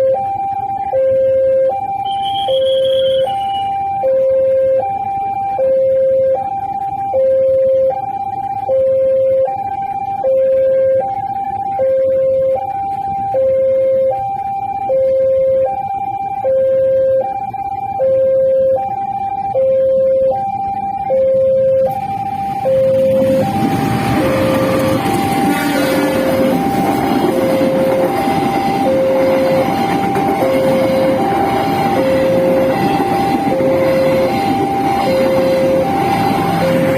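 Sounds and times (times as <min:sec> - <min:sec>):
level crossing two-tone alarm: 0:00.0 - 0:36.9
train rumbling: 0:21.5 - 0:36.9.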